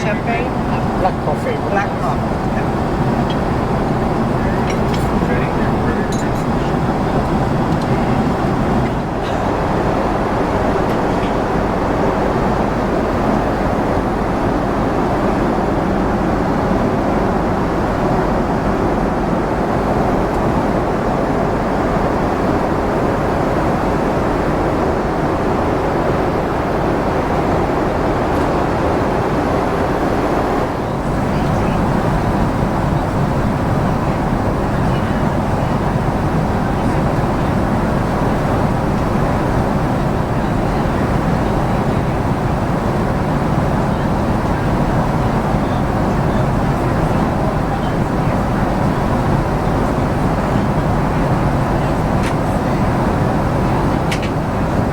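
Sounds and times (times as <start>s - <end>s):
airliner cabin engine and airflow rush: 0.0s - 54.9s.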